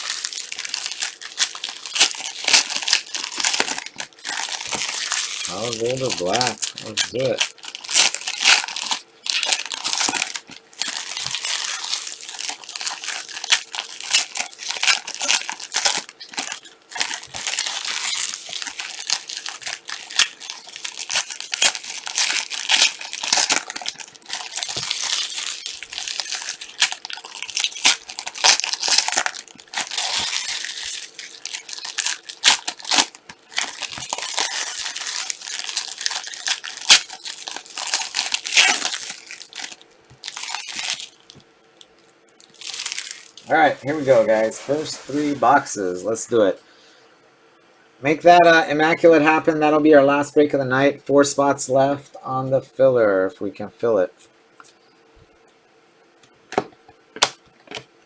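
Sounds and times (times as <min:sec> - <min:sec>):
plastic wrapping crinkling and tearing: 0:00.0 - 0:45.7.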